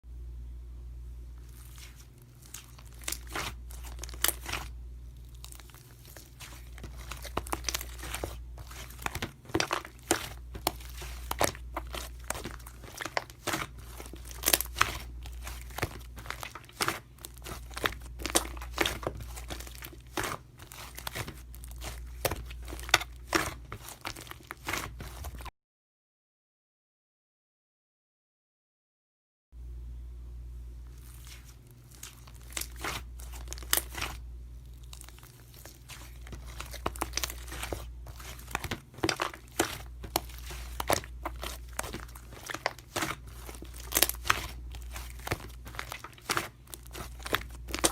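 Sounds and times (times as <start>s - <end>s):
steady low hum: 0.1s - 25.5s, 29.6s - 47.9s
plastic crinkling: 1.4s - 25.5s, 30.8s - 47.9s.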